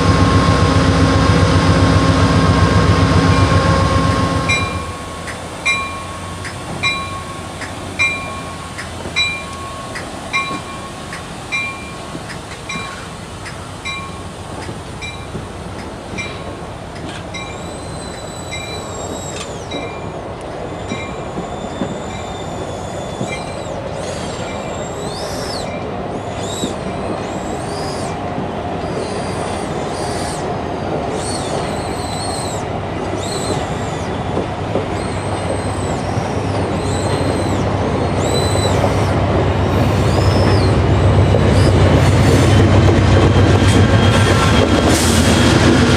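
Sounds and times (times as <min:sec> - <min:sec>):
railcars rolling on rails: 0:00.0 - 0:45.9
wheel flange squeal: 0:17.4 - 0:28.2, 0:31.1 - 0:39.2.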